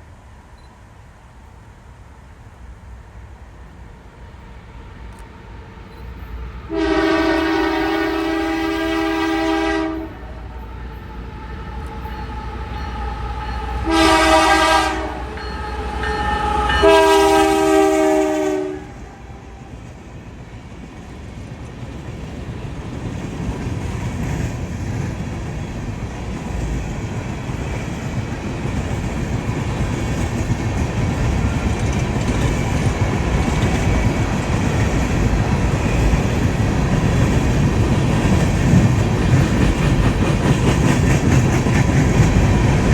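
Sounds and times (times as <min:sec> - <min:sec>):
train rumble: 0:00.0 - 0:42.9
locomotive air horn blasts: 0:06.7 - 0:10.4, 0:11.8 - 0:19.4.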